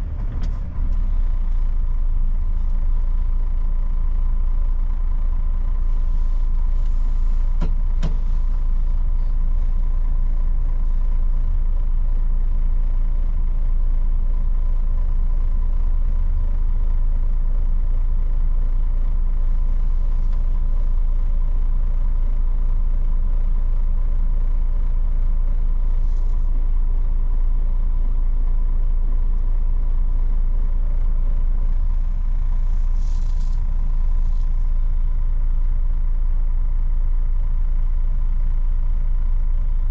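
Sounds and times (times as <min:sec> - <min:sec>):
diesel truck engine rumbling: 0:00.0 - 0:12.0, 0:30.2 - 0:37.0.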